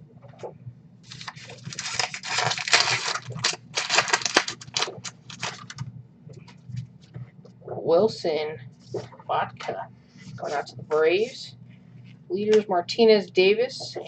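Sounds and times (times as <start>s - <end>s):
cards rustling and flicking: 1.1s - 5.8s.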